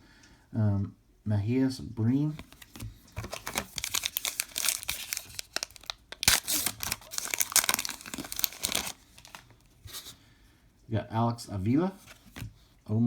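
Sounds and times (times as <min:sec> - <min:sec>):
wrapper crinkling and tearing: 0:02.4 - 0:09.7.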